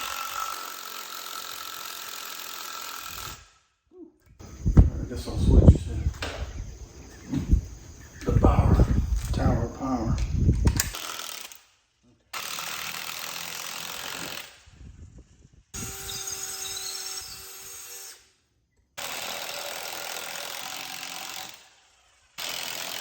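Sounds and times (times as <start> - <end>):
power tool driving bolts: 10.2 - 11.6, 12.4 - 14.6, 19.0 - 23.0.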